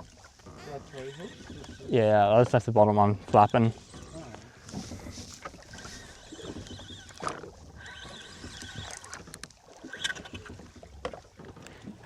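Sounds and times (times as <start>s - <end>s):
wind and water wash: 0.0s - 12.0s
fishing gear clicks and knocks: 8.4s - 12.0s.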